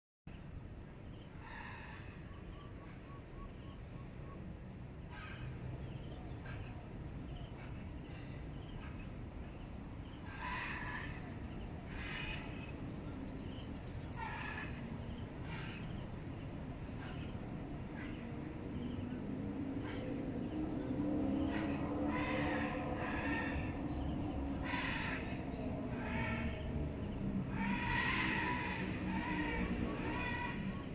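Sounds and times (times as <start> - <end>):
birds chirping: 0.3 - 30.9.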